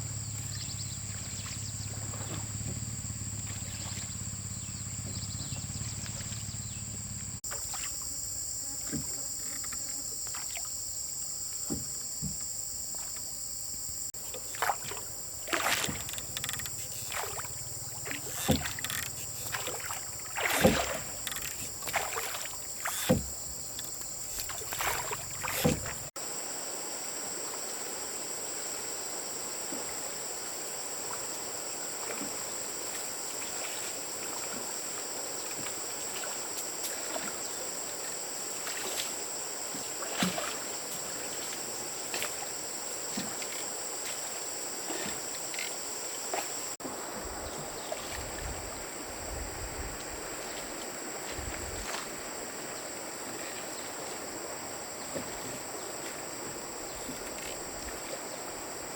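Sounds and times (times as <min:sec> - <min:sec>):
high insect chirring: 0:00.2 - 0:26.2.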